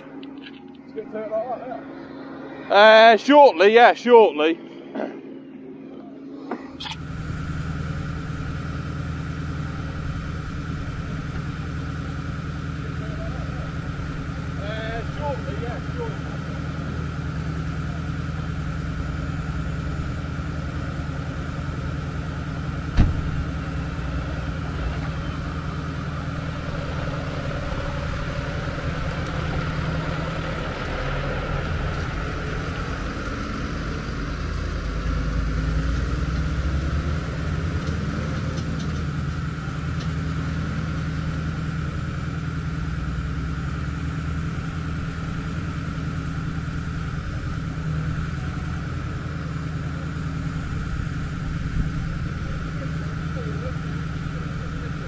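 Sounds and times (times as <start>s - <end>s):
truck engine idling: 0.0s - 55.0s
truck engine revving: 0.0s - 55.0s
sharp bang: 22.9s - 23.5s.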